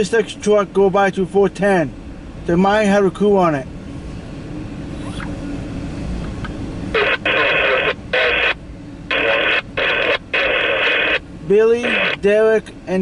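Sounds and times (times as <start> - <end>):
harsh radio static bursts: 6.9 - 12.3.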